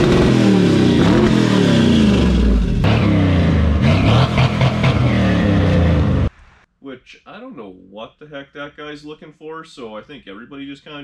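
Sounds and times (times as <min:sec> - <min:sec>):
car engines revving: 0:00.0 - 0:06.4.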